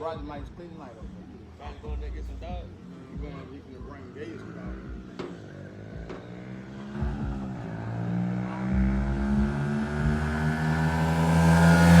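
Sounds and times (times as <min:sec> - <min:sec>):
dirt bike engine running: 0:04.6 - 0:12.0.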